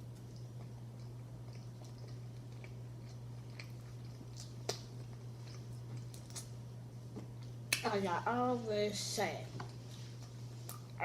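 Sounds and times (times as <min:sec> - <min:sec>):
person chewing: 0:00.0 - 0:07.6.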